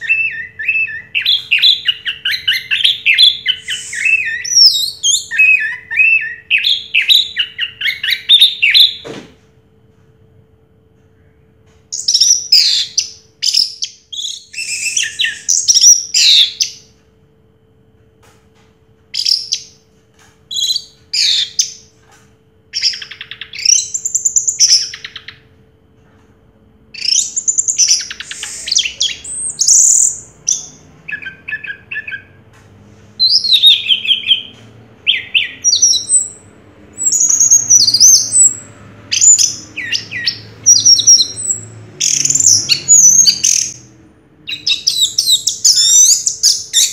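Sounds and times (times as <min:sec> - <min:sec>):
thrush singing whistles and trills: 0:00.0 - 0:09.0, 0:12.0 - 0:16.9, 0:27.0 - 0:32.4, 0:33.2 - 0:46.9.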